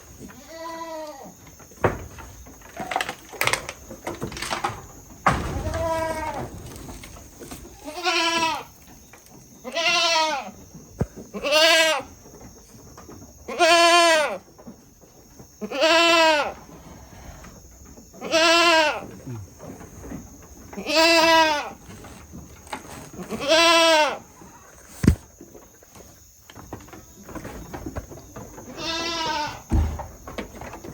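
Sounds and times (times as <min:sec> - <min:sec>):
goat bleating: 0:00.4 - 0:01.3, 0:07.8 - 0:08.7, 0:09.6 - 0:10.5, 0:11.3 - 0:12.1, 0:13.5 - 0:14.4, 0:15.6 - 0:16.6, 0:18.2 - 0:19.1, 0:20.8 - 0:21.8, 0:23.2 - 0:24.3, 0:28.7 - 0:29.6.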